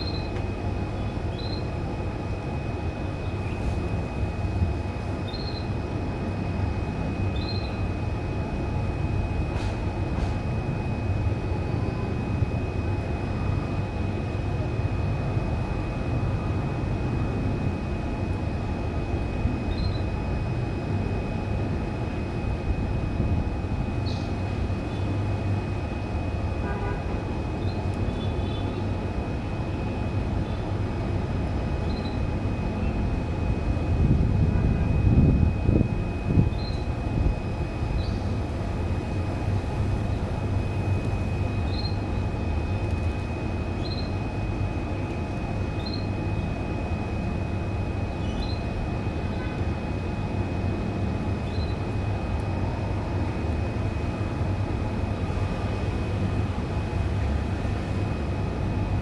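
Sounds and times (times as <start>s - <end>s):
faint canary chirps: 1.3s - 1.6s, 5.2s - 5.6s, 41.7s - 42.0s, 43.8s - 44.1s.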